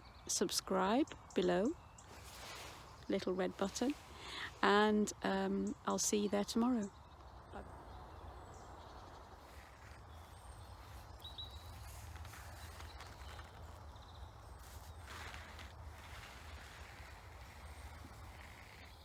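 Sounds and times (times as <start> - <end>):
bird chirps: 0.0 - 19.0
soft rustles: 2.0 - 5.0, 9.3 - 19.0.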